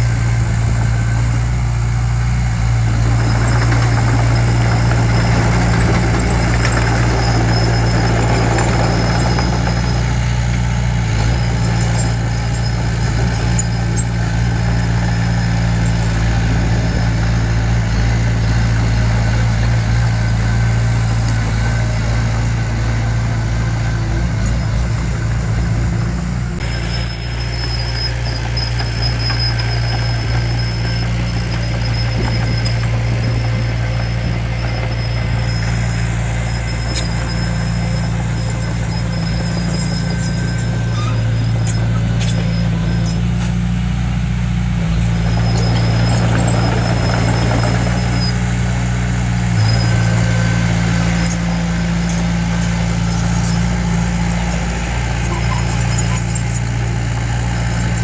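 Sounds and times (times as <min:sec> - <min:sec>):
heavy diesel engine running: 0:00.0 - 0:58.0
thin high squeal: 0:03.3 - 0:18.0, 0:26.6 - 0:43.8, 0:49.6 - 0:58.0.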